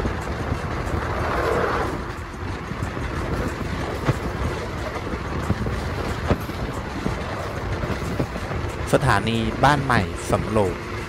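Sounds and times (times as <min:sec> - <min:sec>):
rush of noise: 0:00.0 - 0:11.0
train wheels rumbling: 0:00.0 - 0:11.0.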